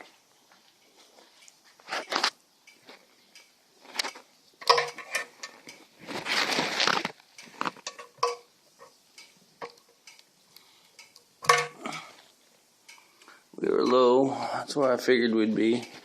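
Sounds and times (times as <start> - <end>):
metal cap clicks and clinks: 4.6 - 5.6, 7.8 - 10.2, 11.0 - 11.9.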